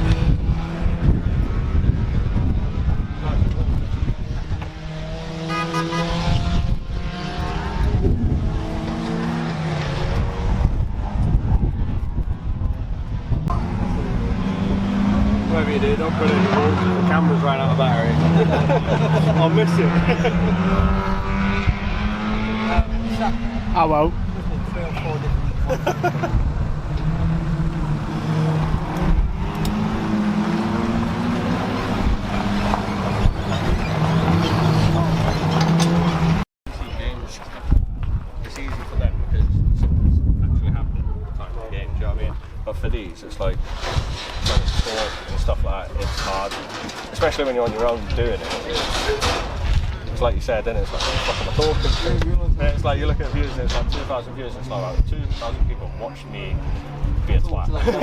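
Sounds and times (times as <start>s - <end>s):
race car engine accelerating: 0.0s - 11.6s, 13.3s - 36.4s
road and wind noise: 0.0s - 58.0s.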